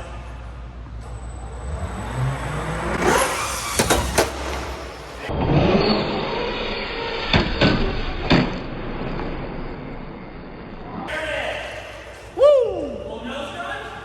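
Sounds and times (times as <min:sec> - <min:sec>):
toy truck motor whine: 0:03.0 - 0:05.0.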